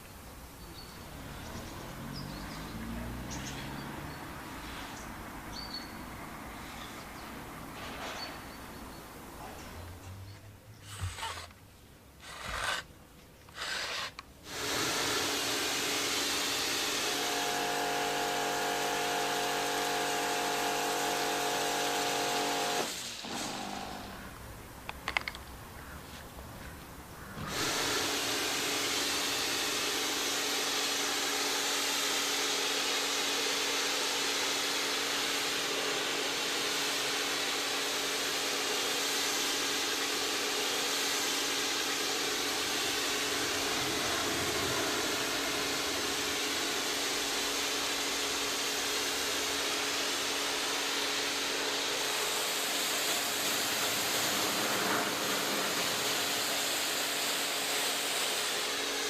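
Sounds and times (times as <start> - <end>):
pressure washer spray hiss: 14.4 - 24.3, 27.4 - 59.0
motor and pump hum: 14.5 - 24.3, 27.4 - 59.0.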